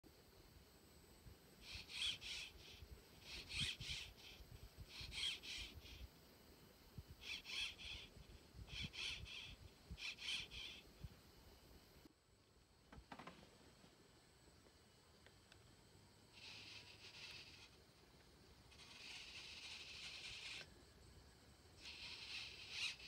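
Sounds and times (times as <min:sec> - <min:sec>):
bird calling: 0:01.6 - 0:06.1, 0:07.2 - 0:10.9, 0:21.8 - 0:23.0.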